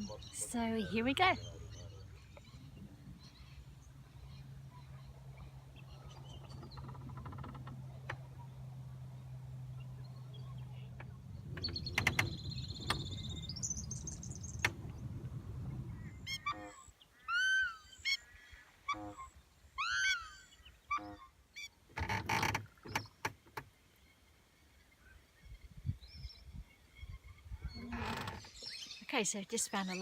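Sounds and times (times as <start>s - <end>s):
low hum: 0.0s - 16.5s
birds twittering chirps: 0.0s - 21.8s, 22.7s - 30.0s
low rumble: 0.9s - 16.4s
honk-like bird calls: 15.9s - 21.3s.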